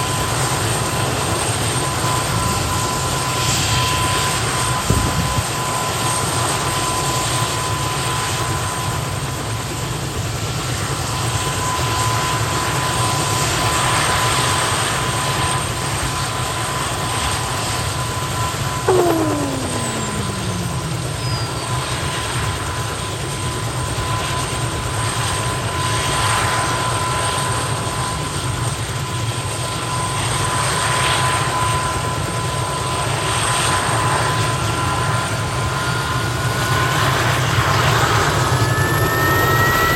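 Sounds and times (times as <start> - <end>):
helicopter engine rumble: 18.7 - 22.3
high turbine whine: 18.8 - 22.0
tone falling in pitch: 18.9 - 21.6.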